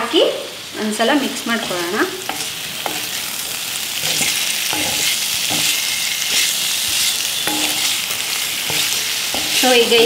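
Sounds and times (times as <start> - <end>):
vegetables sizzling in a pan: 0.0 - 10.0
wooden spatula scraping pan: 1.6 - 10.0.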